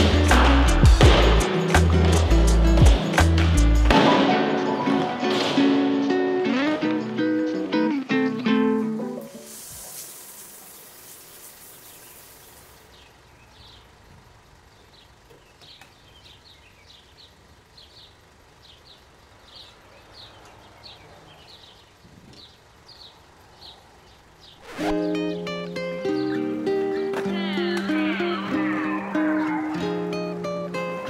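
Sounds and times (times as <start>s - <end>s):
faint hiss: 9.1s - 13.1s
small bird chirping: 9.8s - 27.2s.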